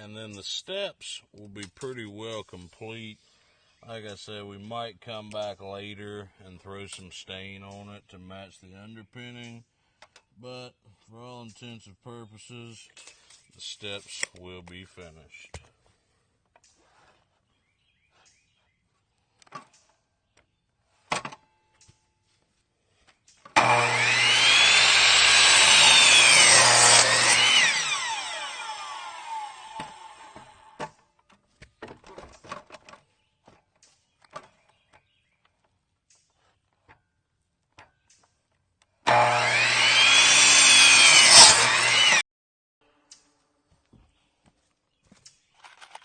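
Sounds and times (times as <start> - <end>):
saw blade spinning down: 23.6 - 30.8, 39.1 - 42.2
electric saw cutting wood: 23.6 - 30.9, 39.0 - 42.2.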